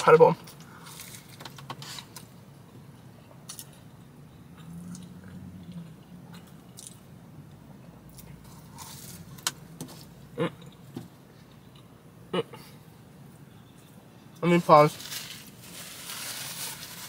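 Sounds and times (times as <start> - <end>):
person chewing pastry: 3.3 - 9.4.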